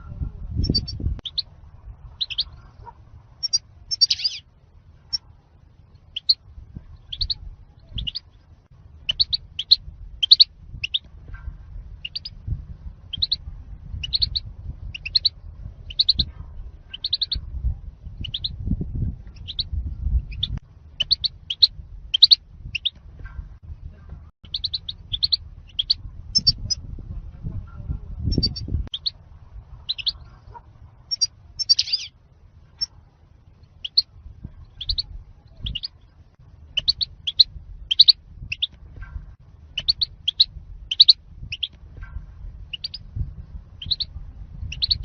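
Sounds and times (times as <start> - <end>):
low rumble: 0.0 - 45.0
goldfinch twittering chirps: 2.2 - 2.5, 3.4 - 4.4, 7.1 - 7.4, 9.1 - 11.0, 12.0 - 12.3, 13.1 - 13.4, 14.0 - 15.3, 15.9 - 16.2, 16.9 - 17.4, 24.5 - 26.7, 31.1 - 32.1, 36.8 - 38.8, 39.8 - 41.8, 42.7 - 43.0, 43.8 - 44.1.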